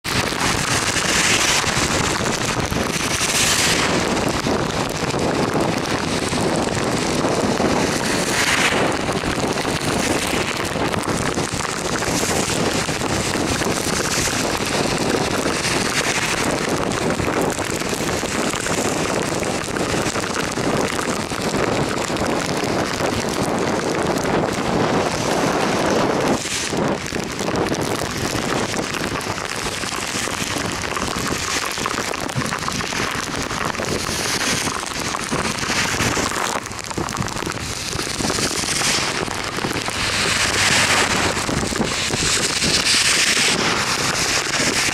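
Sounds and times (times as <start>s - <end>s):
heavy rain: 0.0s - 44.9s
wind rushing over microphone: 0.0s - 44.9s
tyre hiss on wet road: 0.4s - 4.6s, 5.2s - 19.2s, 28.6s - 44.9s
cars swishing past through spray: 39.9s - 41.5s.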